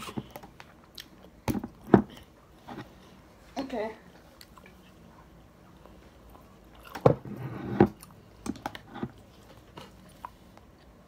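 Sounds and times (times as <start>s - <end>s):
chewing fried chicken: 8.0s - 11.0s.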